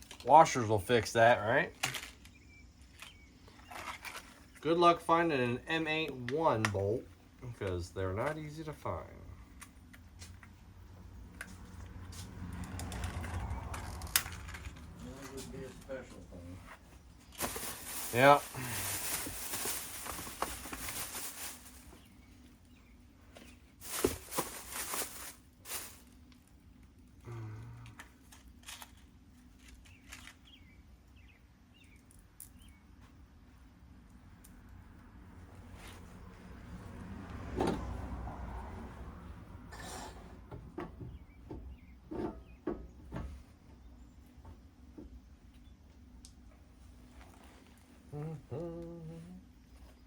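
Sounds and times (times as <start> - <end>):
steady hiss: 17.4 - 20.5.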